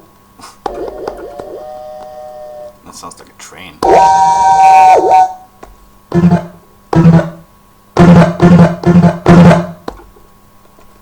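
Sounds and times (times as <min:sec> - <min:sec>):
synthesizer tone falling pitch: 0:00.7 - 0:02.8, 0:03.8 - 0:05.5
short synthesizer stabs: 0:03.8 - 0:05.4.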